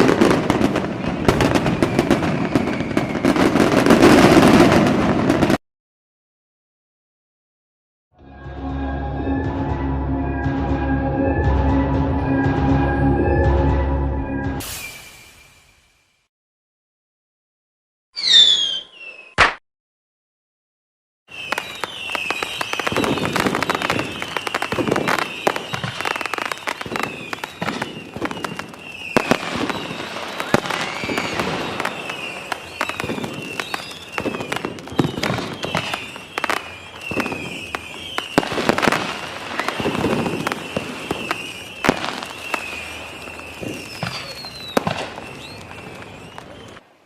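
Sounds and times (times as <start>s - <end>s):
fireworks bangs and crackles: 0.0s - 5.6s, 21.3s - 47.0s
fireworks whistles: 0.0s - 5.6s, 14.3s - 16.3s, 18.2s - 19.6s, 21.3s - 46.9s.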